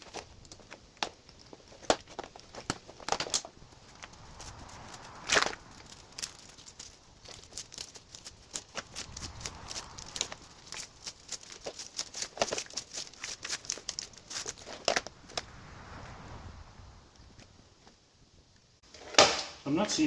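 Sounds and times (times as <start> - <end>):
wires and connectors rustling: 0.0 - 15.5.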